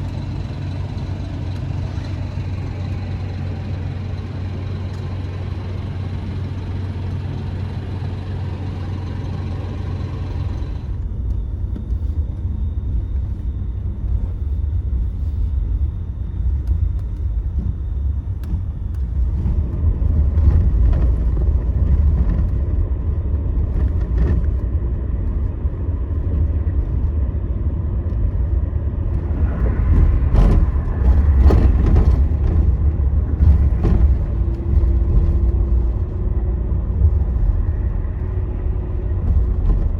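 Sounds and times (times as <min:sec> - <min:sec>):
coach engine and road rumble: 0:00.0 - 0:39.9.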